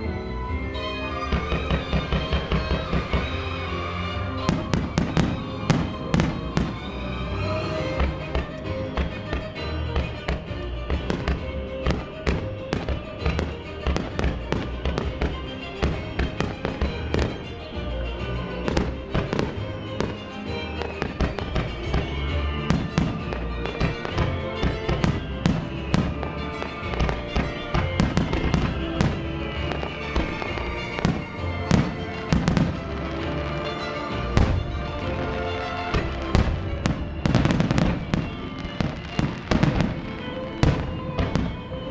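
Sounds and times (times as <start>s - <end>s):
music over loudspeakers: 0.5s - 41.9s
firework crackles: 1.4s - 18.0s, 18.6s - 41.9s
firework shells bursting: 18.6s - 41.8s.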